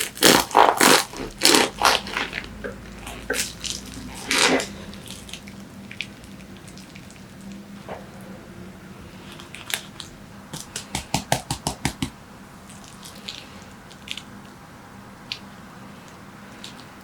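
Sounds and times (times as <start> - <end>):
faint steady hum: 0.0 - 17.0
sharp knocks: 10.5 - 12.2.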